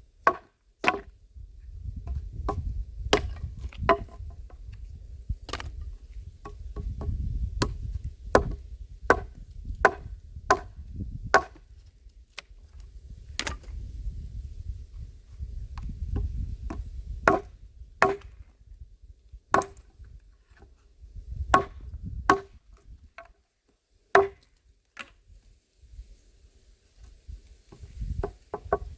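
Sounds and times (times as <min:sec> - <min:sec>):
axe chopping wood: 0:00.2 - 0:01.1, 0:02.0 - 0:04.3, 0:05.5 - 0:05.8, 0:06.4 - 0:11.7, 0:13.3 - 0:13.7, 0:15.8 - 0:18.5, 0:19.5 - 0:19.9, 0:21.5 - 0:22.6, 0:24.1 - 0:25.1.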